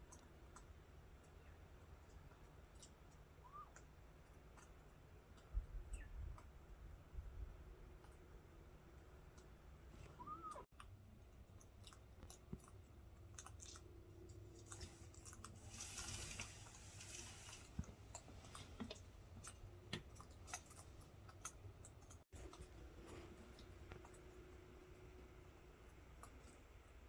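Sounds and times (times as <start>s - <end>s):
faint low hum: 0.0s - 27.0s
soft hiss: 14.4s - 18.9s.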